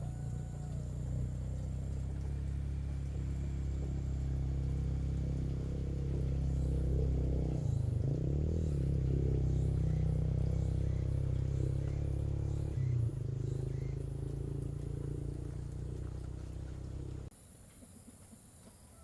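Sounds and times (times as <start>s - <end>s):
motor humming: 0.0s - 17.3s.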